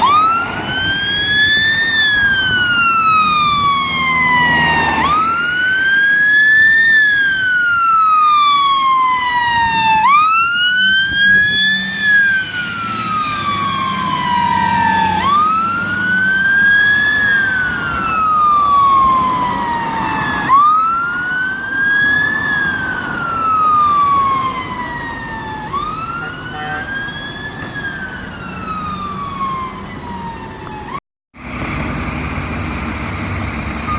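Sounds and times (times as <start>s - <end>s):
fire engine siren wailing: 0.0s - 33.9s.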